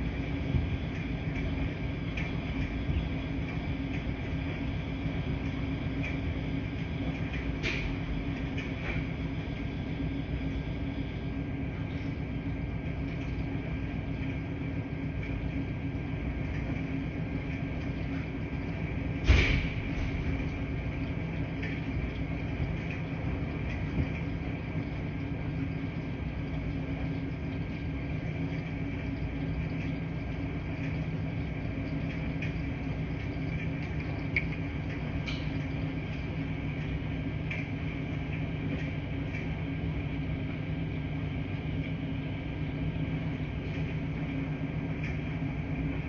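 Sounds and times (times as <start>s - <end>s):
washing machines running: 0.0s - 46.0s
loud clunk: 19.2s - 20.2s.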